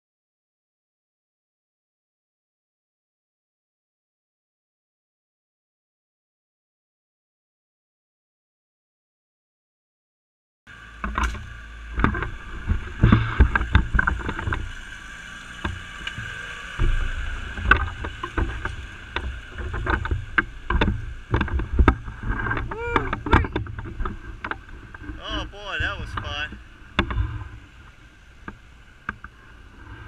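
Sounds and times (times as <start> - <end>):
tractor diesel engine under load: 10.7 - 30.0
knocks and rattles: 11.0 - 15.0, 15.6 - 27.6.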